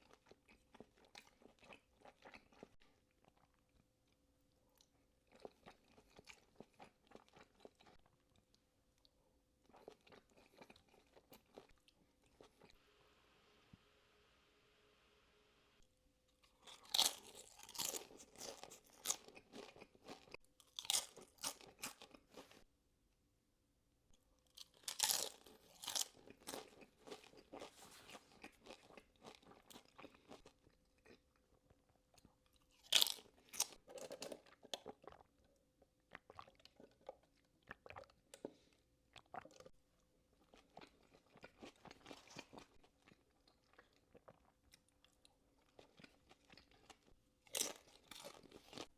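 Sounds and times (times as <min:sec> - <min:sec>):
crunching bites of food: 0:16.4 - 0:22.6, 0:24.5 - 0:31.2, 0:32.6 - 0:35.2, 0:45.7 - 0:48.9.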